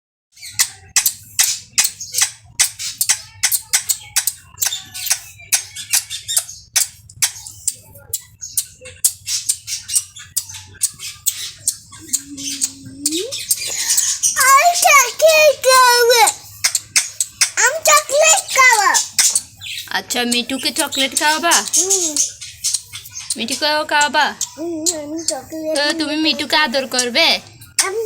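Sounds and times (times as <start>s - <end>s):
parrot squawking: 8.7s - 28.0s.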